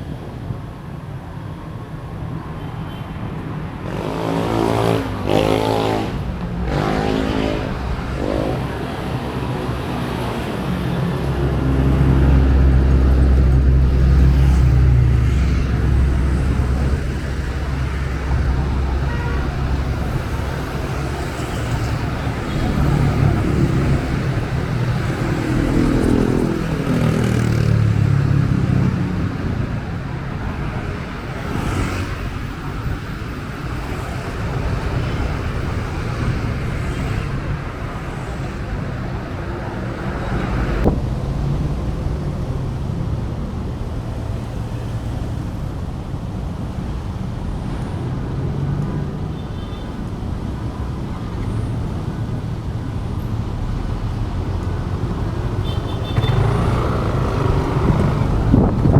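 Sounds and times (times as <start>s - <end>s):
road traffic: 0.0s - 58.9s
vehicle passing: 3.9s - 33.2s, 54.3s - 58.9s
wind buffeting microphone: 56.2s - 58.9s.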